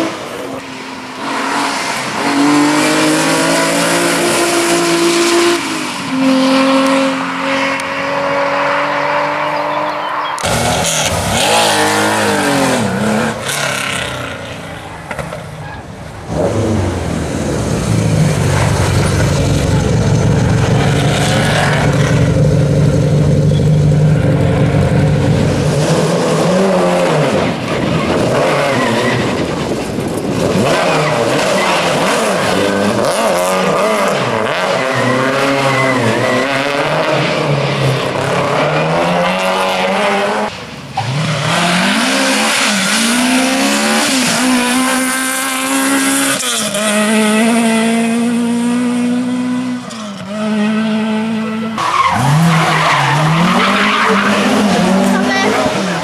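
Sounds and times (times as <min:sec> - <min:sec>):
rally car engines revving: 0:00.0 - 0:56.0.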